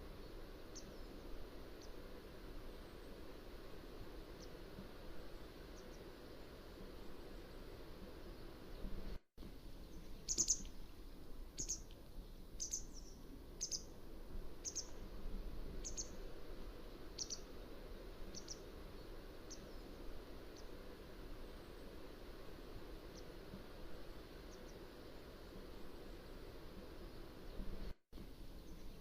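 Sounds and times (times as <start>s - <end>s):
bird chirping: 9.8s - 10.8s, 11.6s - 13.9s, 14.6s - 15.0s, 15.8s - 16.2s, 17.2s - 17.5s, 18.3s - 18.7s.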